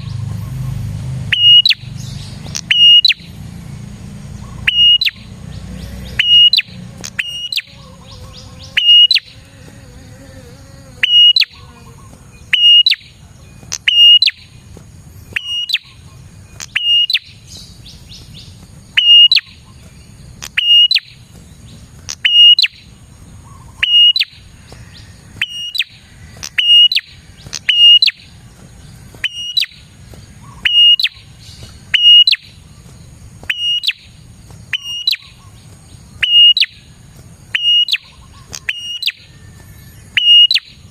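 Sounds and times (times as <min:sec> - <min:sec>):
bird calling high sharp notes: 0:01.3 - 0:03.4, 0:04.4 - 0:09.5, 0:11.0 - 0:14.6, 0:15.2 - 0:19.8, 0:20.4 - 0:21.2, 0:22.1 - 0:28.4, 0:29.2 - 0:32.7, 0:33.4 - 0:35.6, 0:36.2 - 0:36.9, 0:37.5 - 0:40.9.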